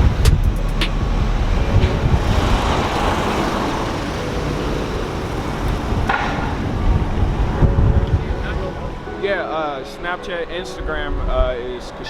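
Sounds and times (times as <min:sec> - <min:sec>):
car engine and road rumble: 0:00.0 - 0:09.2.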